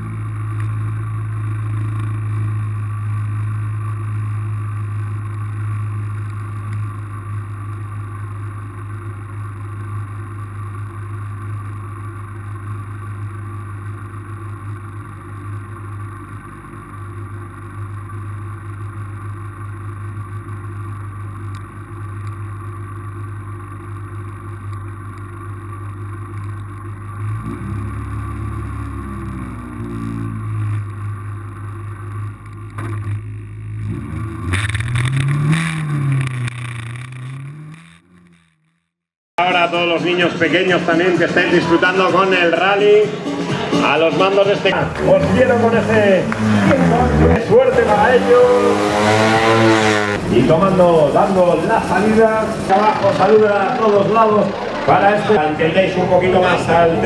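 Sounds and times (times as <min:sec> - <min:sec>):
car engine idling: 0:00.0 - 0:38.9, 0:40.4 - 0:57.0.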